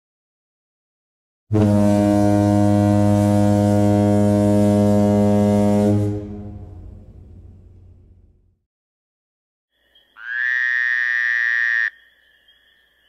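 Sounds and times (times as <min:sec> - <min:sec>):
deep ship horn blast: 0:01.5 - 0:08.4.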